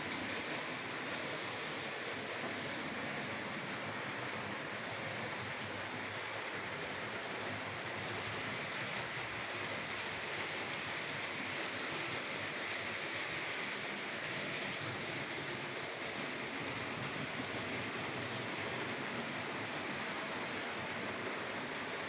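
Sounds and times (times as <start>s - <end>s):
small electric motors: 0.0s - 7.2s
model train wheels on rails: 0.0s - 22.0s.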